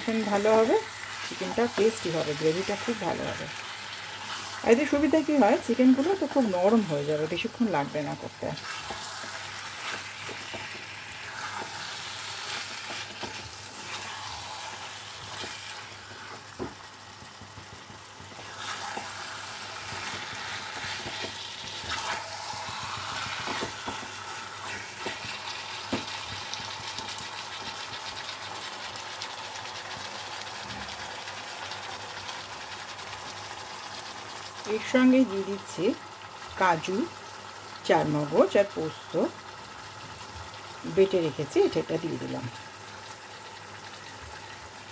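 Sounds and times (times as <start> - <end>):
chicken sizzling in a pan: 0.0 - 44.9
spatula scraping and knocking pan: 19.8 - 26.5.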